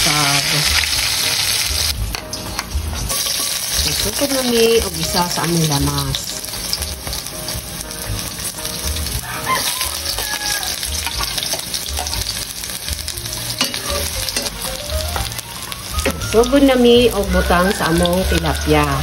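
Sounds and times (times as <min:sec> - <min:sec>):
onion and garlic sizzling in oil: 0:00.0 - 0:19.0
spatula scraping a pan: 0:02.5 - 0:05.3, 0:09.0 - 0:12.4, 0:13.6 - 0:14.6.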